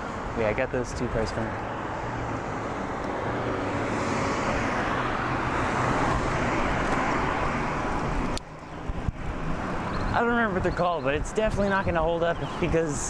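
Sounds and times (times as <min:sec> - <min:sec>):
car passing close by: 0:01.5 - 0:08.4.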